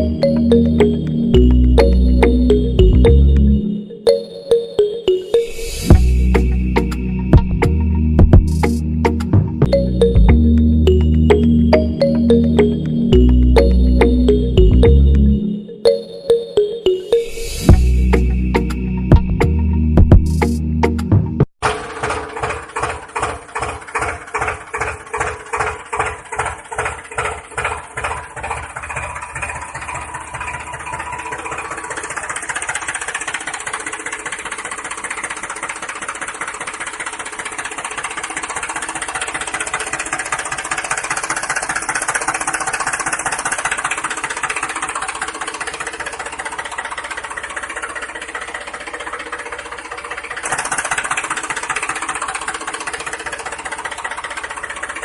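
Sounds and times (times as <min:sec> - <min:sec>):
engine chugging: 0:00.0 - 0:55.0.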